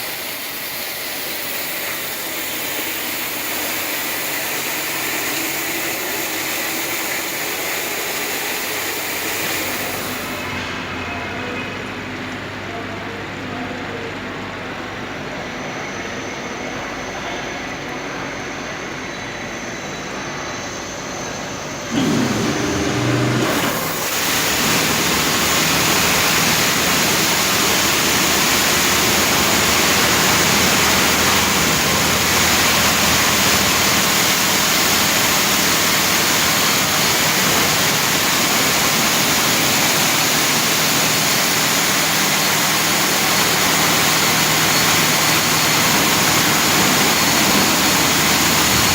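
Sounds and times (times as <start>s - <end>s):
loud rushing hiss: 0.0s - 11.0s, 21.0s - 48.9s
vehicle wash machine hum: 0.0s - 48.9s.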